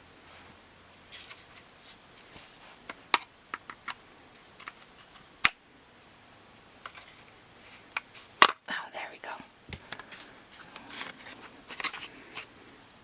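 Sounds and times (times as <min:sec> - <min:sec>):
plastic clicks and rattles: 0:04.6 - 0:05.6
sharp plastic snap: 0:05.4 - 0:05.6, 0:08.0 - 0:08.6.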